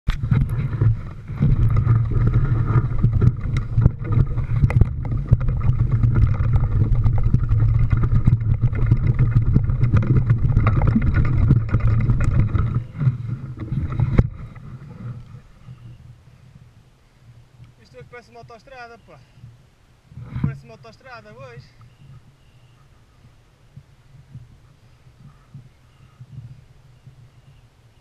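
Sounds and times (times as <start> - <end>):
knocks and rattles from bumps: 0.2 - 14.5.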